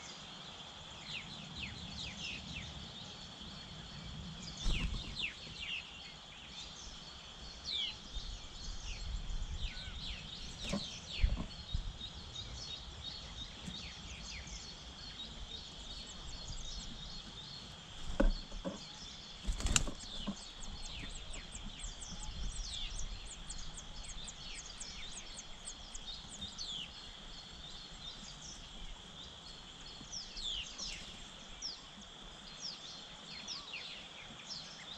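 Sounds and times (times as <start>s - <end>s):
small birds chirping: 0.0s - 34.9s
sharp thumps: 18.0s - 18.8s.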